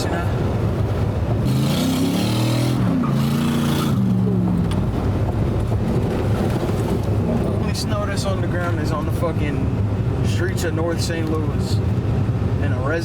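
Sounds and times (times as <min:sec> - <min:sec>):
truck engine revving: 0:00.0 - 0:07.5.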